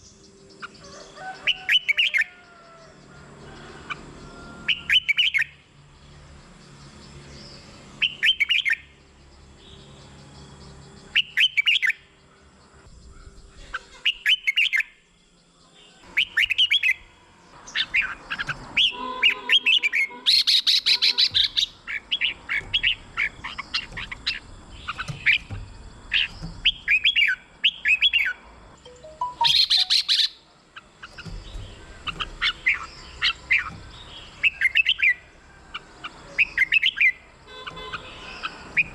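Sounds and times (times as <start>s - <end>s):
bird singing warbled phrases: 0.0s - 2.9s, 4.7s - 5.6s, 6.7s - 38.9s
scratchy bird chatter: 17.6s - 28.5s, 29.5s - 38.9s.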